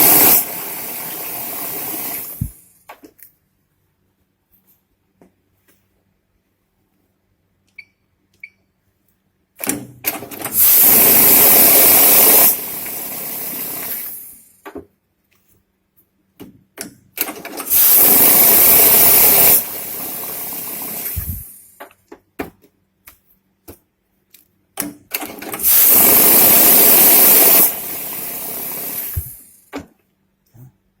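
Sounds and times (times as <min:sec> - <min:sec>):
banknote counting machine whirring: 0:00.0 - 0:02.4, 0:10.1 - 0:14.3, 0:17.2 - 0:21.3, 0:25.2 - 0:29.4.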